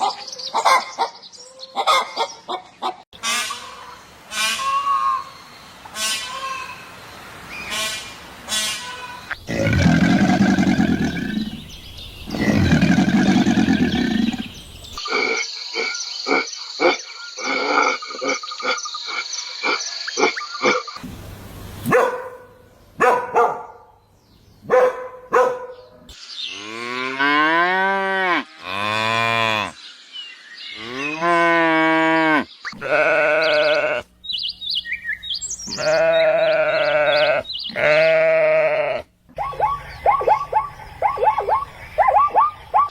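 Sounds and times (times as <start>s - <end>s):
rough low animal calls: 12.3s - 20.8s
sheep bleating: 31.4s - 34.0s, 35.7s - 39.1s.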